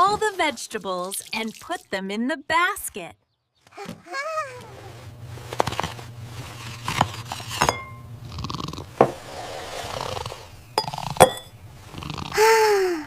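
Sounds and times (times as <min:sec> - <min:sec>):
dishes and utensils clinking: 0:07.4 - 0:08.1, 0:10.8 - 0:11.6.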